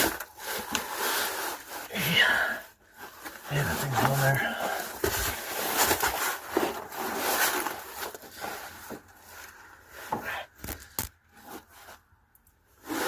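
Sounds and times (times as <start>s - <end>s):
rubber hose rubbing and scraping: 0.0s - 13.0s.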